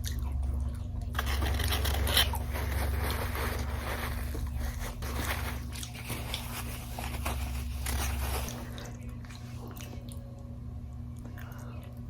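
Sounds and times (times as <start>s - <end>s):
person biting and chewing food: 0.0s - 10.2s
low steady hum: 0.0s - 12.0s.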